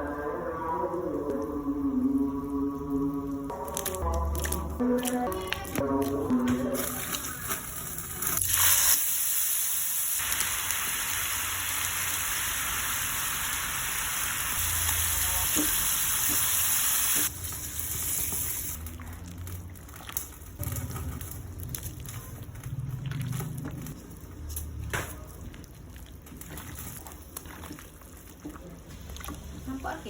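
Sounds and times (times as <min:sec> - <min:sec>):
food sizzling in hot oil: 0:08.2 - 0:18.8.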